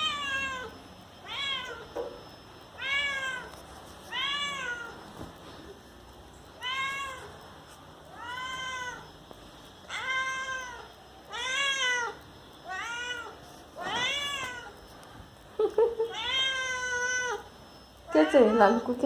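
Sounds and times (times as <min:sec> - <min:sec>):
cat meowing: 0:00.0 - 0:01.9, 0:02.8 - 0:03.5, 0:04.1 - 0:05.0, 0:06.6 - 0:07.4, 0:08.1 - 0:09.2, 0:09.9 - 0:14.8, 0:16.1 - 0:17.5.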